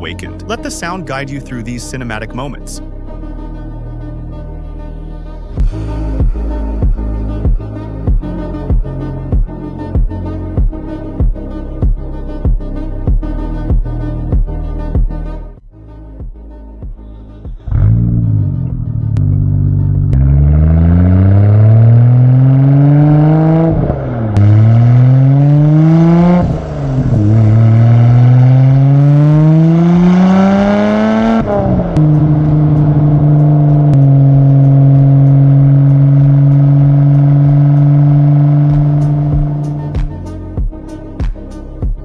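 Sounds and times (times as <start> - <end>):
car engine accelerating through gears: 17.3 - 40.4.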